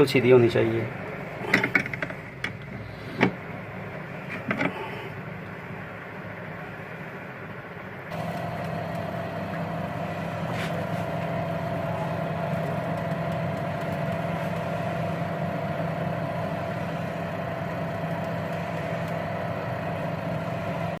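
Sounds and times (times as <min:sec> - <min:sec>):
washing machine motor hum: 0:00.0 - 0:21.0.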